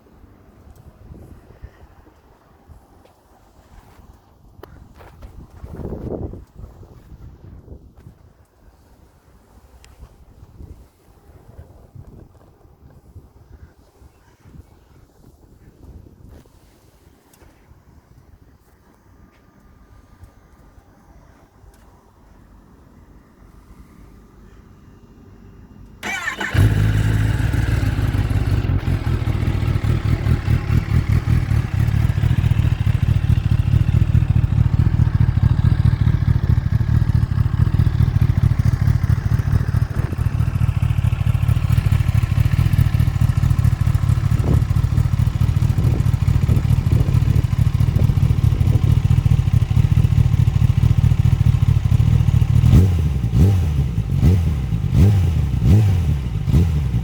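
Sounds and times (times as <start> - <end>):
engine revving: 26.0 - 33.4, 52.6 - 57.0
motorcycle engine idling: 26.0 - 54.8.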